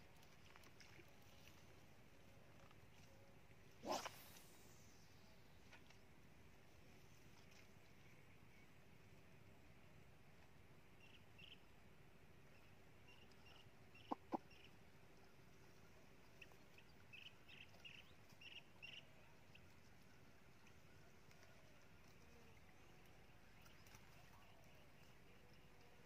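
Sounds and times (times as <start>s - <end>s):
faint bird chirps: 12.5s - 14.8s, 15.8s - 26.0s.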